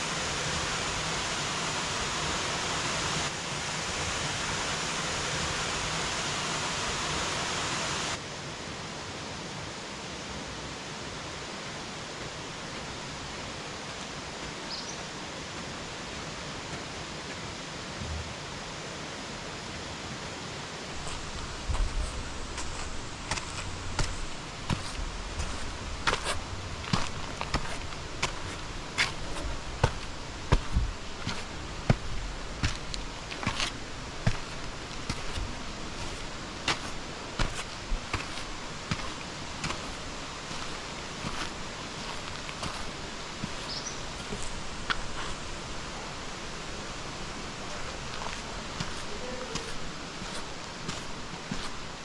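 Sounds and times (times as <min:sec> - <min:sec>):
outdoor noise: 0:00.0 - 0:52.0
steady hiss: 0:00.0 - 0:52.0
footsteps on a trail: 0:20.2 - 0:46.6, 0:47.2 - 0:52.0
light rustles and knocks: 0:21.0 - 0:45.4
low rumbling handling noise: 0:21.0 - 0:45.7.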